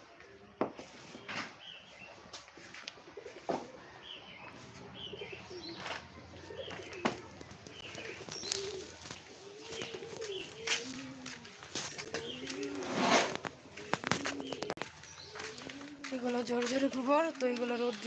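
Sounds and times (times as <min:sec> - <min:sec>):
small birds chirping: 0:01.1 - 0:02.2, 0:02.9 - 0:12.9, 0:13.5 - 0:18.0
pigeons cooing: 0:03.0 - 0:16.1.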